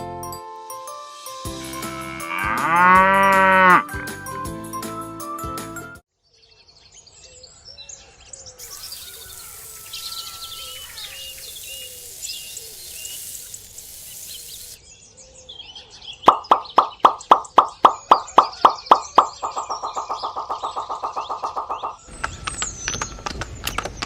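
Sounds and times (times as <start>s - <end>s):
birds chirping: 8.5s - 15.2s, 16.2s - 24.0s
faint outdoor hiss: 8.6s - 15.0s.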